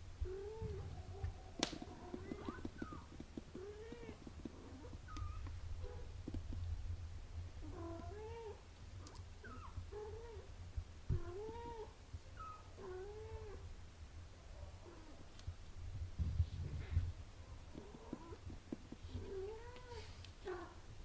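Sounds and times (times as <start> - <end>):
cats mewing: 0.2 - 5.5, 19.2 - 20.9.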